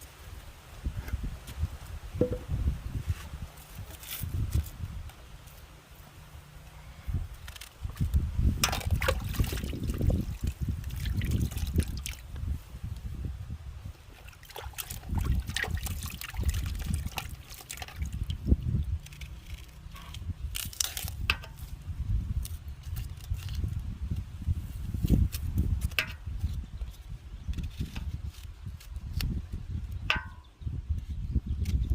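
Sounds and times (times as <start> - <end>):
knocks and splashes of handling: 7.5 - 12.2, 14.1 - 21.7
water trickling and sloshing: 7.6 - 12.4, 14.0 - 21.1.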